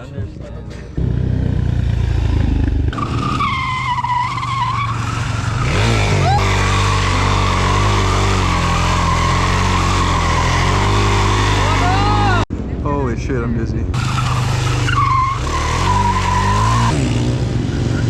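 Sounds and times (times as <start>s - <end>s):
tyres squealing: 3.0s - 12.4s, 14.0s - 17.0s.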